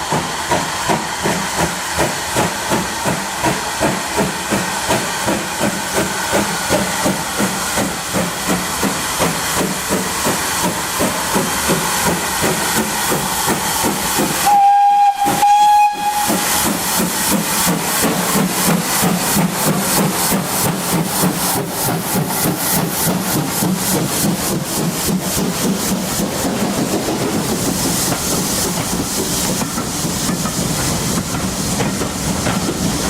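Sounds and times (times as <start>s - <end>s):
steam locomotive chuffing: 0.0s - 33.0s
steam locomotive whistle: 14.4s - 16.8s.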